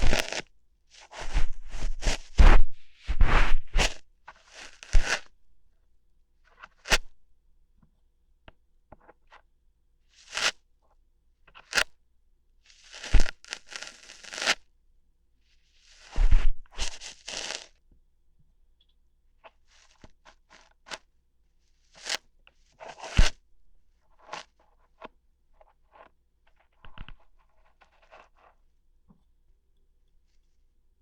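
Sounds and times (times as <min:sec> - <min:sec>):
ear hair plucking crackles: 0:17.0 - 0:17.6.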